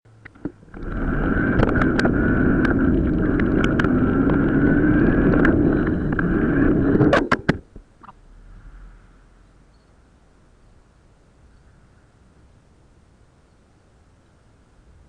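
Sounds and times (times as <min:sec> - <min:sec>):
bicycle tyre rumble: 0:00.2 - 0:10.9
wind on the microphone: 0:00.3 - 0:13.2.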